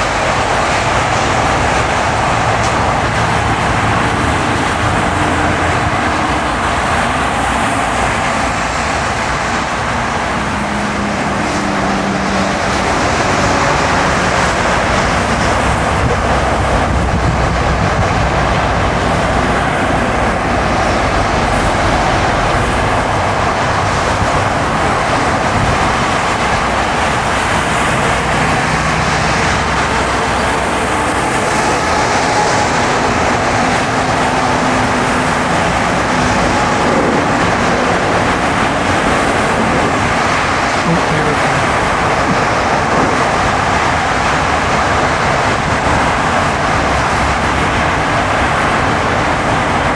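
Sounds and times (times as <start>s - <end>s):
tyre and road noise: 0.0s - 49.9s.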